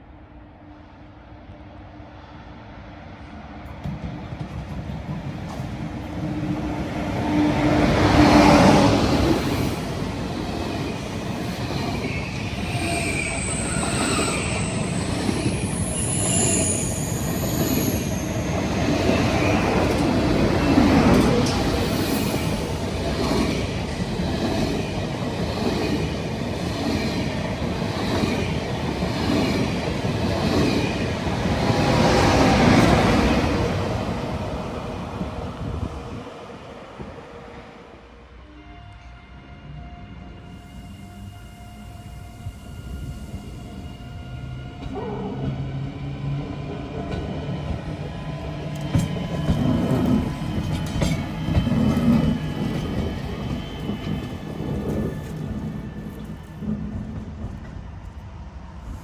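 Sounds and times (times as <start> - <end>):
train rolling on rails: 3.3 - 59.0
high-pitched wheel squeal: 12.6 - 18.8.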